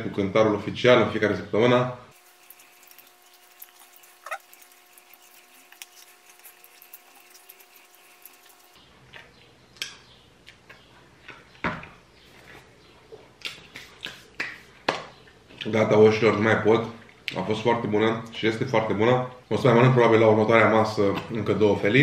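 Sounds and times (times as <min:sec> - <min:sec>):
man chewing food: 0:02.1 - 0:11.6.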